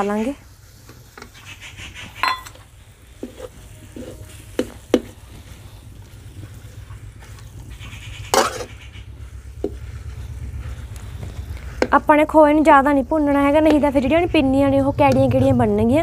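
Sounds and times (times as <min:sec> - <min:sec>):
metal spatula scraping metal pan: 0:03.2 - 0:05.2, 0:07.7 - 0:08.9.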